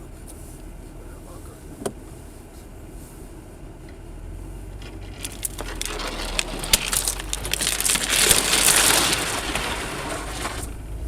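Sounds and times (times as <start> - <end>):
vehicle low running hum: 0.0 - 11.0
ice crunching under tyres: 4.6 - 11.0.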